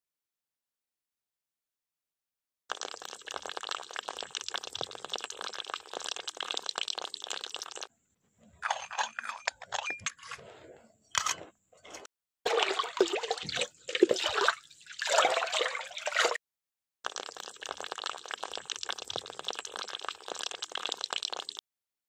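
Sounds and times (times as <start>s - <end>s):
water trickling into metal pot: 2.7s - 7.9s, 12.5s - 16.4s, 17.1s - 21.6s.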